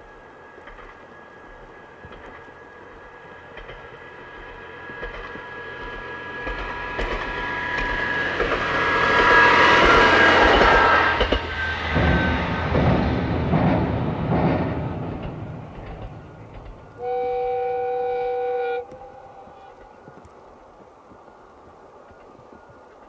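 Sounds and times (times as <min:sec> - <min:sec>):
diesel railcar passing: 0:00.0 - 0:23.0
wheels knocking over rail joints: 0:09.8 - 0:17.0.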